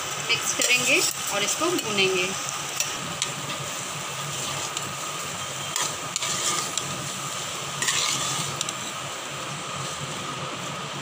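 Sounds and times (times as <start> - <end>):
food sizzling in a pan: 0.0 - 11.0
spatula scraping a pan: 4.3 - 8.9.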